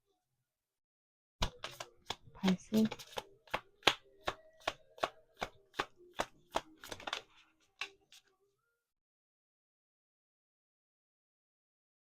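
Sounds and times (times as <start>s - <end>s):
cards being shuffled: 1.4s - 8.3s.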